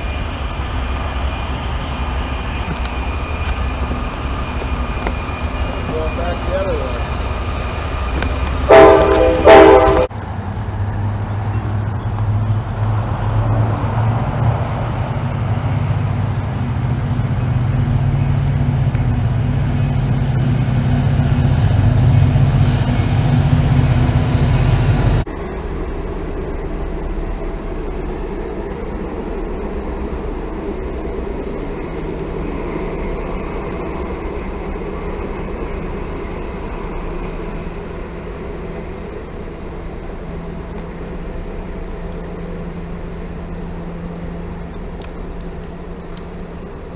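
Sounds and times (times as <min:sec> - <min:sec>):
freight train rumbling past: 0:00.0 - 0:46.9
locomotive engine running: 0:00.0 - 0:46.9
locomotive air horn blasts: 0:08.7 - 0:10.1.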